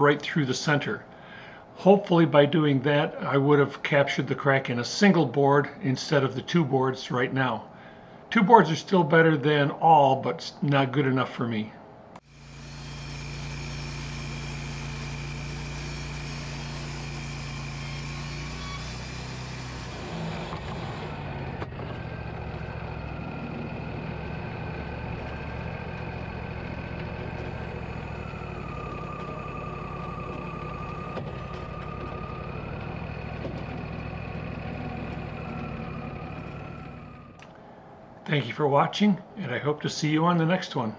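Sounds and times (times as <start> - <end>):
sawmill engine humming: 12.2 - 37.5.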